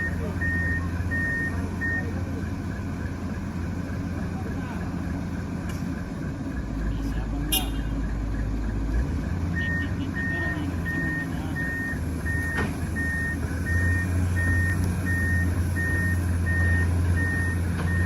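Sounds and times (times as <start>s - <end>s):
reversing alarm beeping: 0.0s - 3.5s, 7.8s - 18.0s
diesel engine idling: 0.0s - 18.0s.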